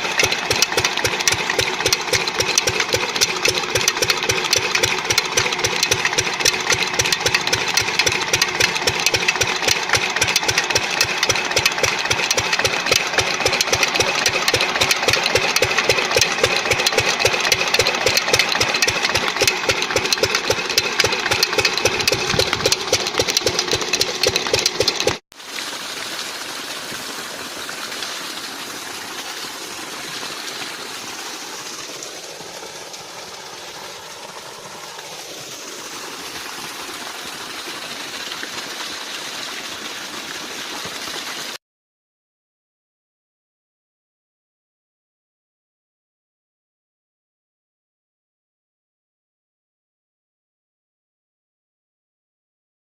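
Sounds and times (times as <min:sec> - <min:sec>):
diesel engine knocking: 0:00.0 - 0:25.2.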